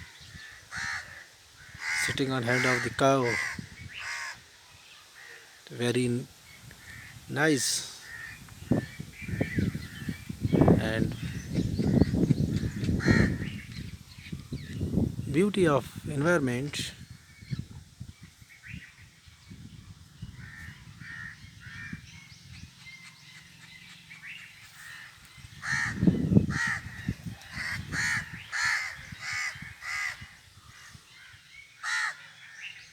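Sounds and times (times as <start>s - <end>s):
crows cawing: 0.3s - 4.5s, 5.1s - 5.6s, 6.8s - 7.2s, 8.0s - 10.0s, 11.2s - 13.7s, 20.4s - 32.7s.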